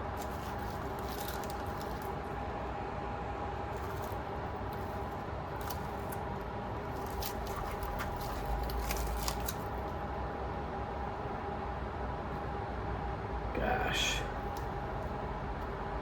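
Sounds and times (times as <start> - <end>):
steady low hum: 0.0 - 16.0
small objects clicking and rustling: 0.1 - 2.2, 6.9 - 9.8.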